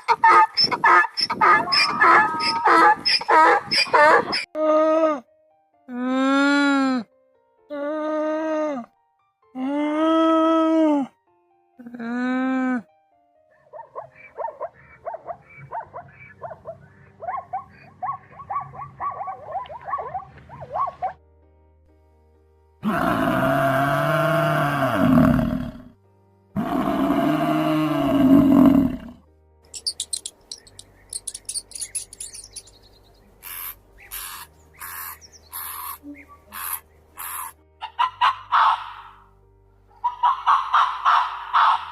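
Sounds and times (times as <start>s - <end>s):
bird harsh squawks: 0.0s - 4.5s, 33.4s - 39.2s, 40.0s - 41.9s
bird high chirps: 0.2s - 4.5s, 29.8s - 37.5s
short quick chirping calls: 29.8s - 32.8s.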